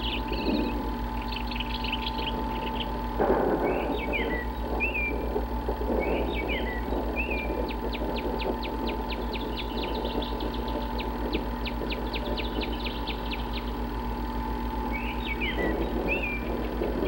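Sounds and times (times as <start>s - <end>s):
songbird singing: 0.0s - 17.0s
steady electrical hum: 0.0s - 17.0s.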